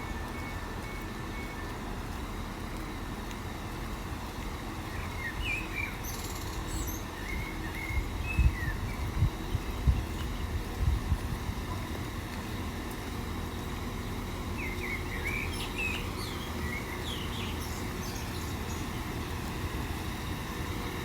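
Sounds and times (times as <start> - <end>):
steady low rumble: 0.0 - 21.0
small birds chirping: 4.8 - 10.4, 14.0 - 19.3.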